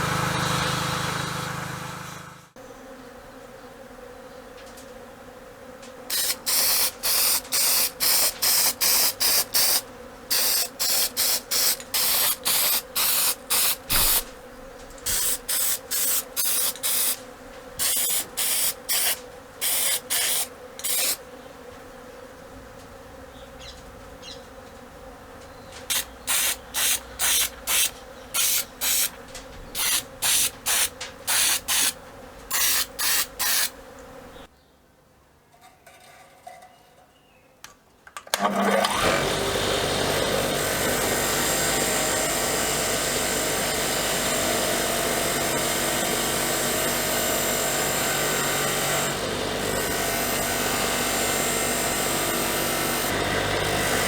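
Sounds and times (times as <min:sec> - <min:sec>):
spray hissing in bursts: 0:06.1 - 0:14.4, 0:15.1 - 0:17.2, 0:17.8 - 0:21.2, 0:25.9 - 0:33.7.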